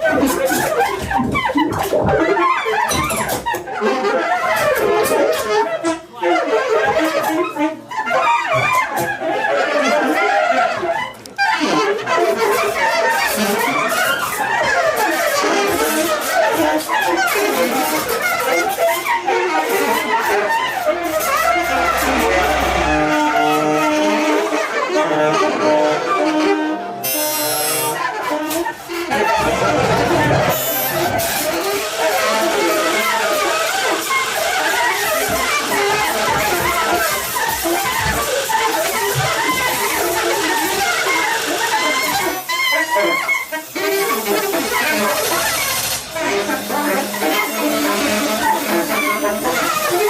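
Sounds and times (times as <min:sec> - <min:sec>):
saxophones: 0:17.1 - 0:33.2
live electronics: 0:19.8 - 0:24.2, 0:29.3 - 0:31.6
low hum: 0:20.8 - 0:24.2.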